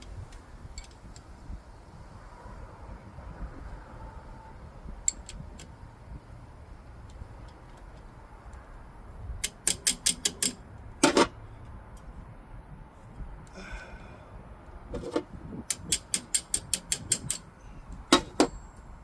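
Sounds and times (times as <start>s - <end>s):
metal tool clicks: 0.7s - 1.3s, 5.0s - 5.7s, 9.4s - 11.3s, 15.0s - 17.5s
metal clank: 18.1s - 18.8s.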